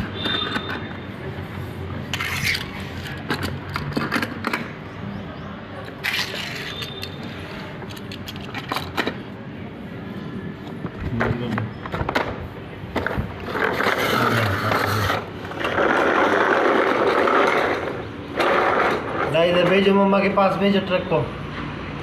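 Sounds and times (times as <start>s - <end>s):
toy scraping and rattling: 2.0s - 4.5s, 5.9s - 9.2s, 13.0s - 19.8s
toy cars clicking together: 2.1s - 4.7s, 5.8s - 7.2s, 7.8s - 9.2s, 13.4s - 19.1s.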